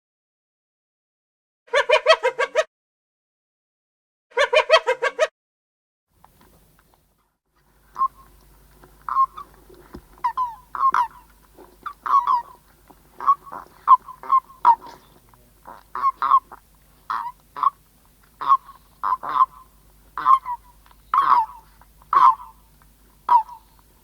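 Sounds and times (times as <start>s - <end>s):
short pitched bird calls: 7.9s - 8.4s, 9.1s - 9.5s, 18.4s - 22.7s.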